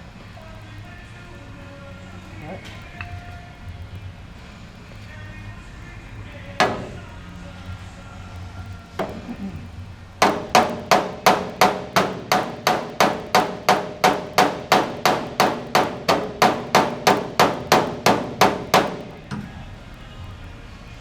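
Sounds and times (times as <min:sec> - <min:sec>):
hammer striking sheet metal: 0:06.6 - 0:07.1, 0:09.0 - 0:09.4, 0:10.2 - 0:19.5.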